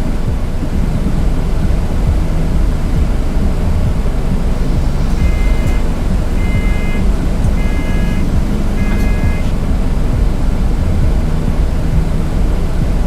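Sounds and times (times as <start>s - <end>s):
bus engine rumbling: 0.0s - 13.0s
electronic beeper: 2.1s - 10.3s.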